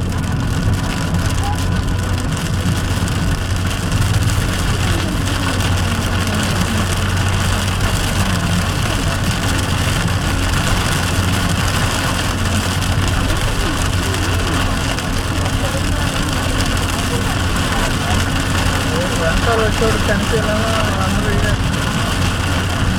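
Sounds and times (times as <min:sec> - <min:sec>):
car driving hum: 0:00.0 - 0:22.9
tyres on wet road: 0:00.0 - 0:22.9
rain hiss: 0:00.2 - 0:22.9.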